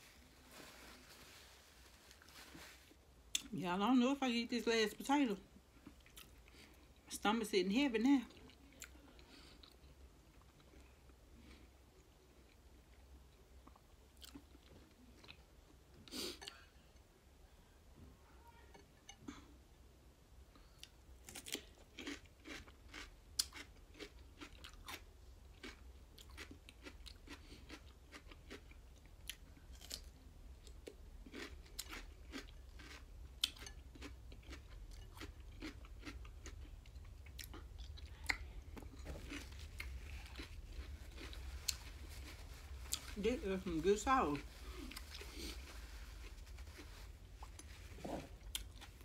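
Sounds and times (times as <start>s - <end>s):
person chewing food: 5.7s - 7.0s, 8.3s - 17.1s, 20.5s - 43.2s, 44.4s - 49.0s.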